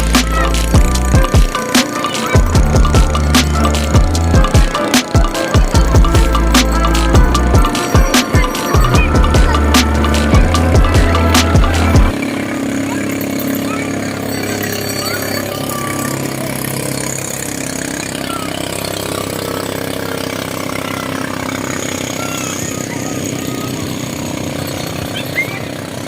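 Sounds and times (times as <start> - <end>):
boat engine running: 0.0 - 26.0.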